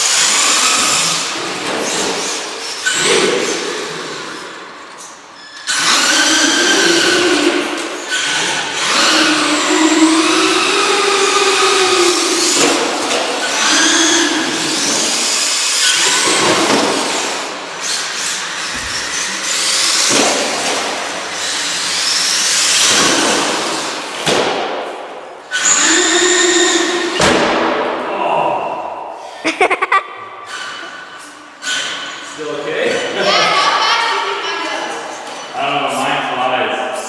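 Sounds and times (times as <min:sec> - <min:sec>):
electric motors whining: 0:00.0 - 0:04.6, 0:05.6 - 0:24.2.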